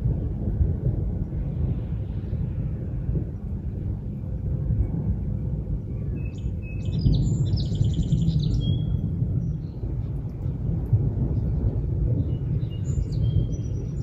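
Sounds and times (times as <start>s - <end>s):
steady low rumble: 0.0s - 14.0s
songbird singing a trill: 5.9s - 9.8s, 12.2s - 14.0s.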